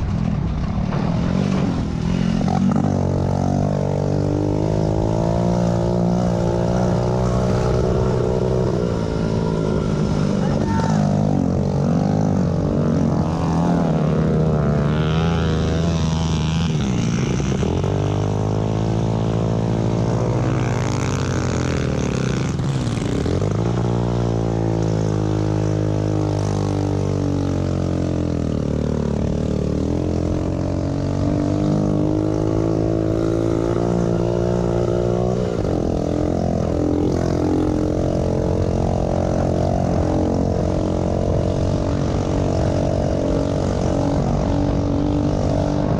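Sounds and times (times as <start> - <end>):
pit bike engines revving: 0.0 - 45.9.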